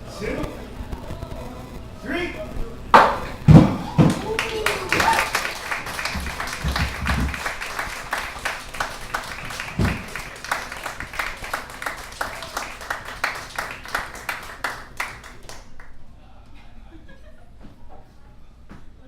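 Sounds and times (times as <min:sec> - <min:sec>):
audience applauding: 0:03.0 - 0:15.9.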